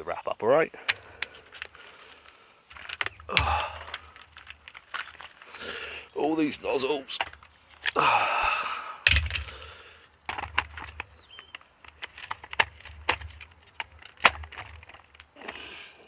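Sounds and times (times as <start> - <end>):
plastic nozzles clicking and knocking: 0.8 - 8.4, 9.1 - 16.0.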